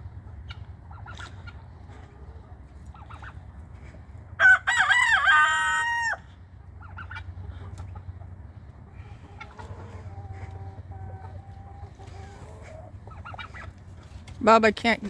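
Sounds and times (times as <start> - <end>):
hens clucking: 0.0 - 15.0
rooster crowing: 4.4 - 6.3
bird calls: 6.7 - 14.1.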